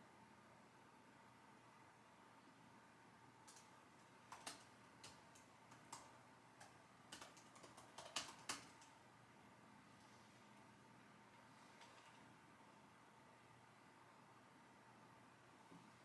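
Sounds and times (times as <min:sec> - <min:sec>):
computer keyboard typing: 0:03.4 - 0:09.0.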